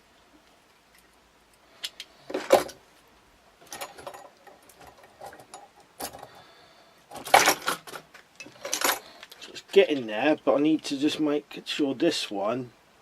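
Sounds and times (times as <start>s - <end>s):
metallic clicks of wire and tools: 0.8s - 2.8s, 3.6s - 6.4s, 7.1s - 9.5s.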